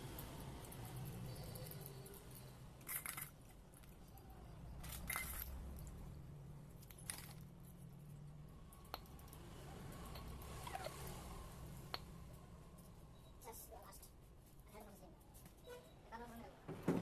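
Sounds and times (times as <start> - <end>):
metal parts and tools clinking: 0.0 - 11.2.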